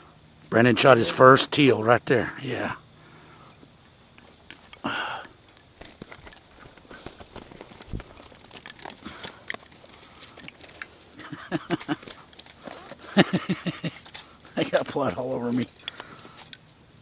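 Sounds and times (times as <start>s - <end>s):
rustling and crinkling material: 5.8s - 13.1s.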